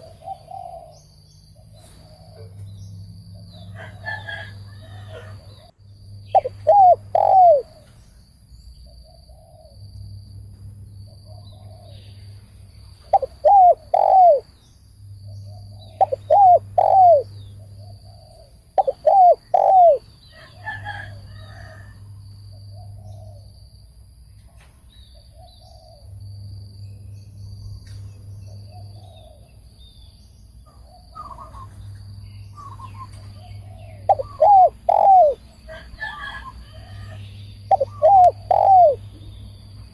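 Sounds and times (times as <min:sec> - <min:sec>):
dove cooing: 0:00.0 - 0:01.0, 0:03.7 - 0:05.7, 0:06.3 - 0:07.8, 0:13.1 - 0:14.5, 0:15.8 - 0:21.9, 0:32.6 - 0:39.0.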